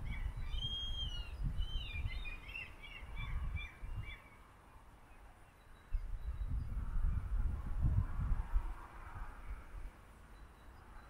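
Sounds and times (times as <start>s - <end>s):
small birds chirping: 0.0s - 6.8s.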